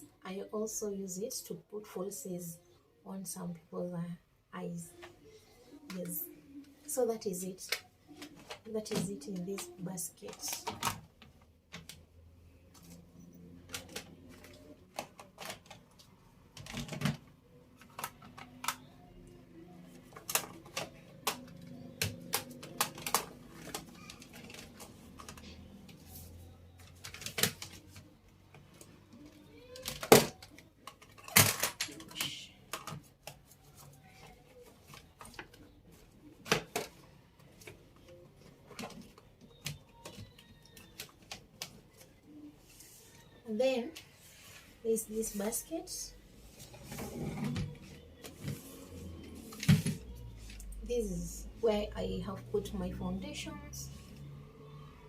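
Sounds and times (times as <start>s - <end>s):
makeup containers clicking and knocking: 29.8s - 33.4s.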